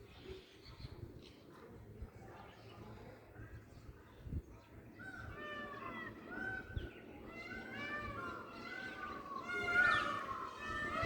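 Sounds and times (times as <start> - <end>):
peacock calling: 7.5 - 11.0.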